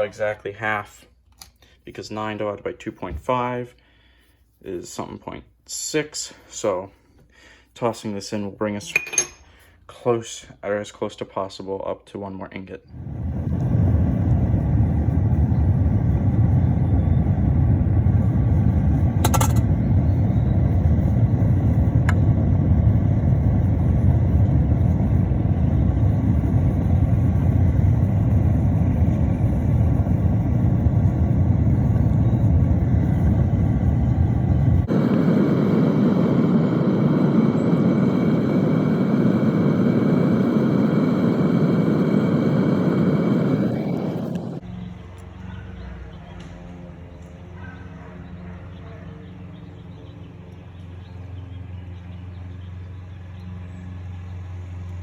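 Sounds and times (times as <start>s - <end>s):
sharp metal clank: 8.8s - 9.5s, 19.2s - 19.7s
furnace rumbling roar: 12.8s - 48.6s.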